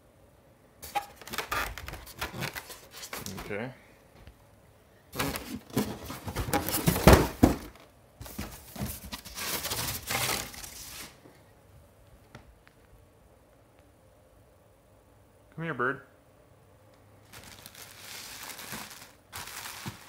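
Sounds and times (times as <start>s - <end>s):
packaging rustling and crinkling: 0.8s - 3.5s, 5.2s - 11.2s, 17.2s - 20.0s.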